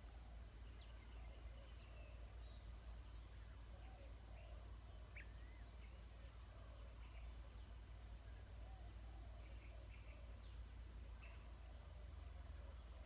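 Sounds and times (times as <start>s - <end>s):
faint bird chirps: 0.0s - 6.0s.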